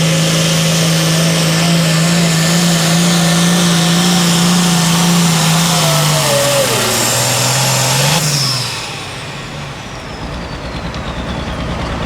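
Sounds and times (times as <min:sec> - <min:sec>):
tractor engine rumbling: 0:00.0 - 0:12.0
turbocharger whine: 0:00.0 - 0:12.0.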